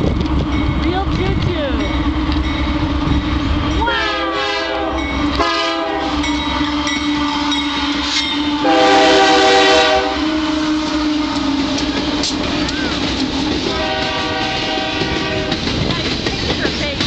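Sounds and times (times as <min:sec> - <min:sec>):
freight train rumbling past: 0:00.0 - 0:17.0
locomotive horn blasts: 0:03.6 - 0:15.7.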